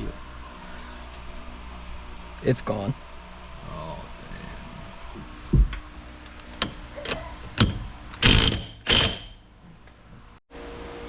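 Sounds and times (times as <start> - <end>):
metal clicks and knocks: 6.5 - 9.4
socket wrench ratchet rasping: 7.6 - 9.4.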